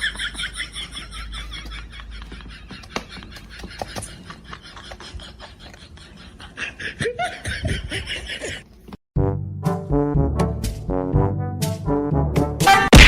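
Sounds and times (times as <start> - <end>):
people laughing: 0.0 - 8.7
brass music: 9.2 - 13.0.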